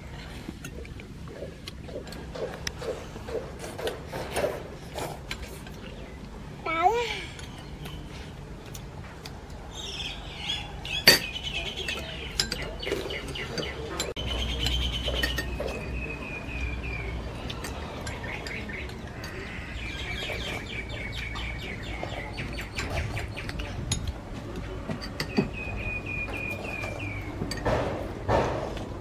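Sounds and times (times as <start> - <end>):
birds chirping in trills: 5.4 - 8.7, 9.6 - 24.0, 25.1 - 27.7.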